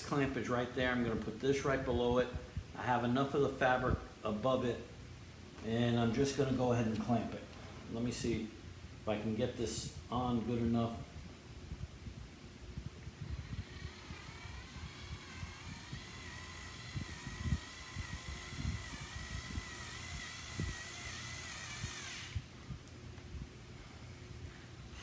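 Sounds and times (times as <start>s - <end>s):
screwdriver motor whining: 13.0s - 22.9s, 23.7s - 25.0s.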